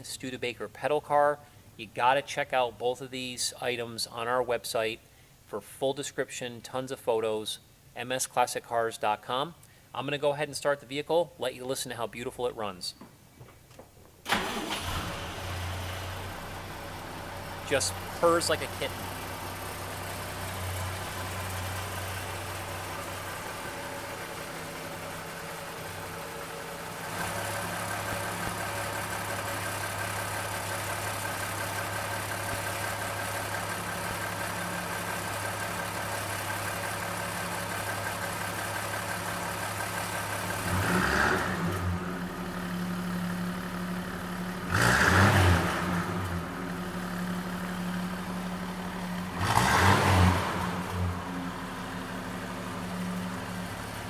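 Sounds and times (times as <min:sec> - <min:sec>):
car engine idling and revving: 0:14.4 - 0:54.0.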